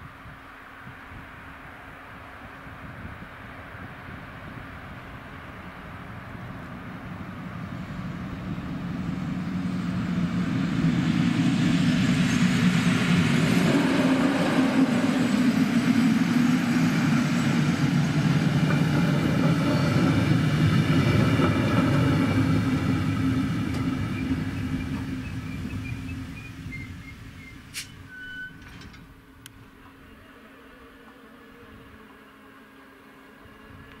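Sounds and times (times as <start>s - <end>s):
train wheels rumbling on rail: 0.0s - 29.6s.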